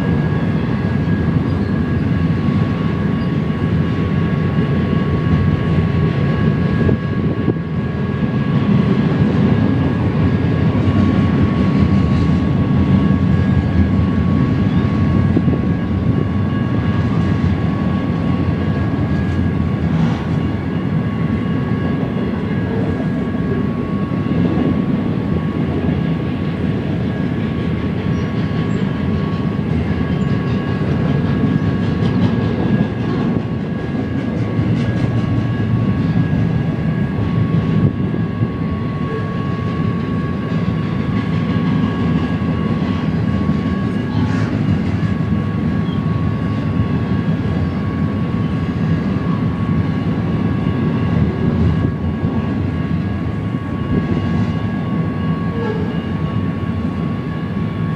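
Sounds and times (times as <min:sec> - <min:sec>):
train wheels rumbling on rail: 0:00.0 - 0:57.9
faint high ringing tone: 0:45.4 - 0:46.9, 0:51.8 - 0:57.9.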